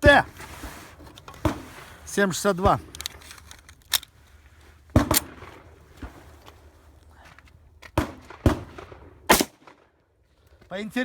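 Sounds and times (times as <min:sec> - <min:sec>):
pistol shots: 0:08.0 - 0:09.8.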